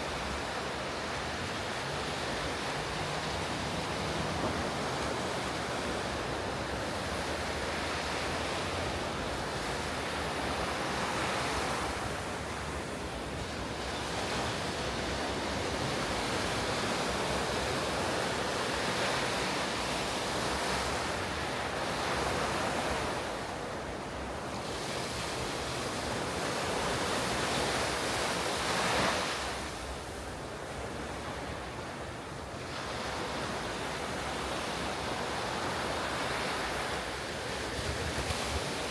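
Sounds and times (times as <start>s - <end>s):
surf breaking on beach: 32.7s - 38.9s
wind buffeting microphone: 37.5s - 38.9s.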